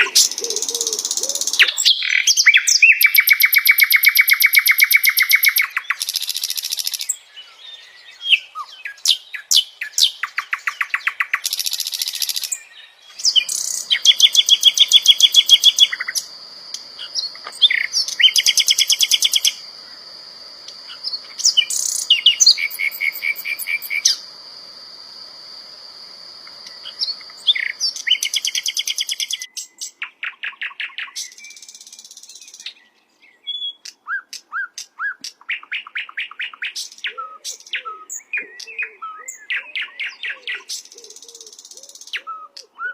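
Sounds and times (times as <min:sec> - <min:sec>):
flycatcher singing trills and chirps: 0:00.0 - 0:24.4, 0:26.4 - 0:34.0.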